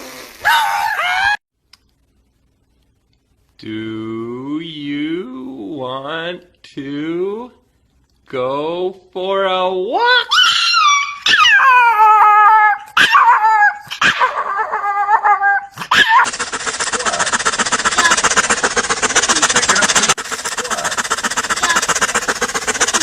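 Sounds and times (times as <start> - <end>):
dog whining and yelping: 0.4 - 1.4, 10.2 - 23.0
hissing rattling noise: 15.8 - 23.0.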